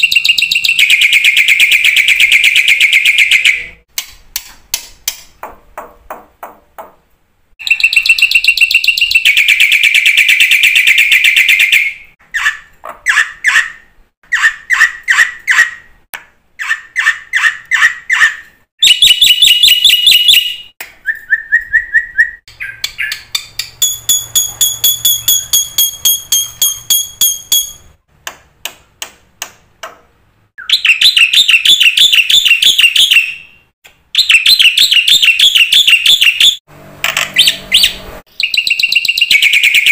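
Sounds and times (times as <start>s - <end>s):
starling singing: 21.6s - 27.8s.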